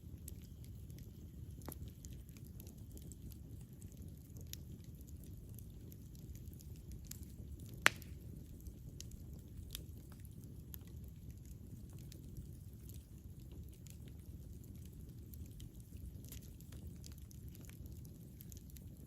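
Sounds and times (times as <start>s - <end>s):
campfire burning: 0.0s - 19.0s
light crackles: 0.0s - 19.0s.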